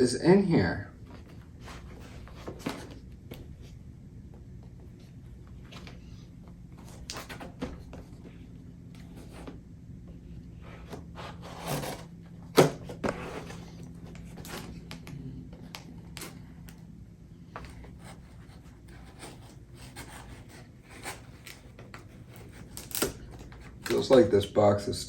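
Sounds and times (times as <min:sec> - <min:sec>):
cardboard box scraping and rubbing: 0:10.8 - 0:12.1.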